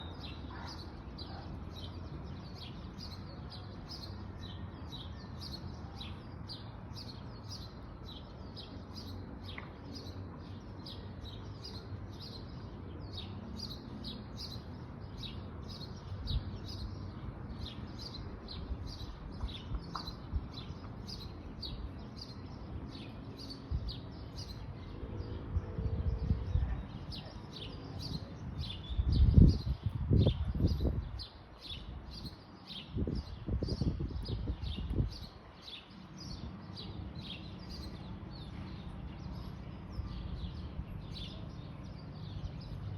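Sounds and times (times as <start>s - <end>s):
bird chirping: 27.1s - 42.9s.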